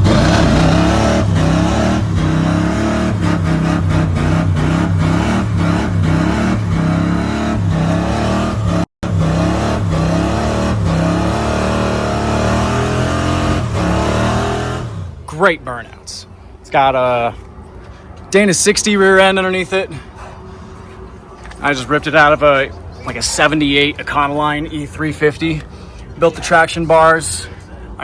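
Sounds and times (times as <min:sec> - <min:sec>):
car engine revving: 0:00.0 - 0:15.4.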